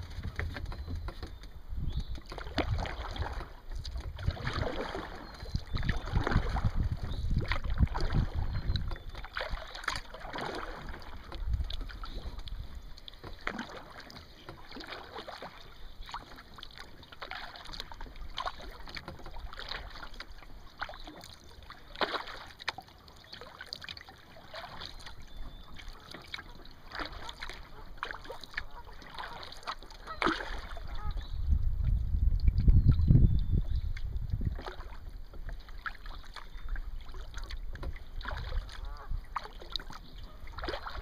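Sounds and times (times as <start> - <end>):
paddle splashing in water: 0.0 - 41.0.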